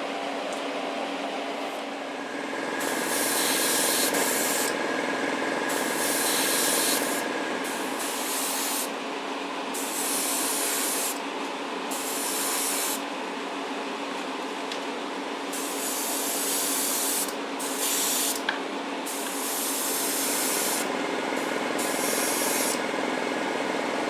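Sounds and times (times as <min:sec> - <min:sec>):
spray paint hissing: 0:02.8 - 0:04.7, 0:05.7 - 0:08.9, 0:15.6 - 0:18.4, 0:19.1 - 0:20.9, 0:21.8 - 0:22.8.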